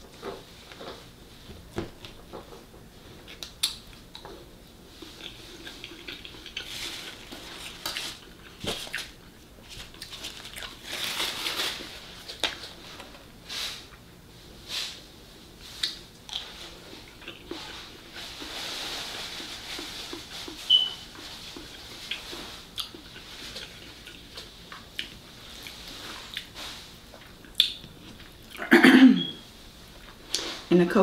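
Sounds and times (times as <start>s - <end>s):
person chewing: 3.2s - 11.2s, 15.7s - 29.3s
wet mouth clicks and smacks: 3.4s - 4.3s, 27.5s - 27.8s.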